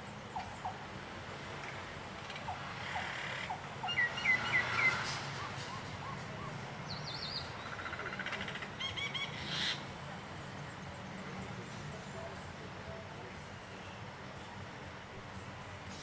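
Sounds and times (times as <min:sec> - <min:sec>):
birds chirping: 0:01.6 - 0:15.9
bird trill: 0:02.5 - 0:09.8.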